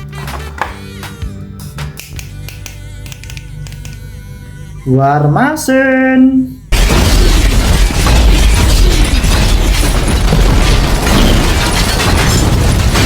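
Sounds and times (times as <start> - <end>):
explosions and blasts: 6.7 - 13.0.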